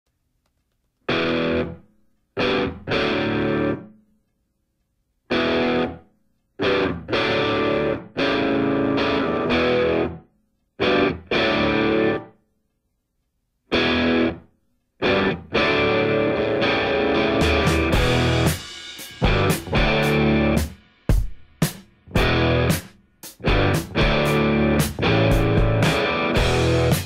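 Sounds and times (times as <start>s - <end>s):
distorted electric guitar chords: 1.1s - 1.8s, 2.4s - 3.9s, 5.3s - 6.0s, 6.6s - 10.2s, 10.8s - 12.3s, 13.7s - 14.4s, 15.0s - 20.7s, 22.1s - 27.0s.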